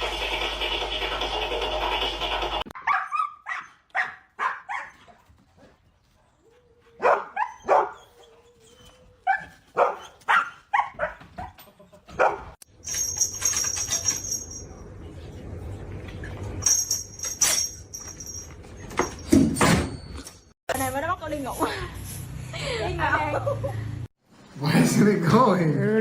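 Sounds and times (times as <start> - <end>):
dog barking: 2.8 - 5.0, 7.0 - 8.0, 9.3 - 12.6.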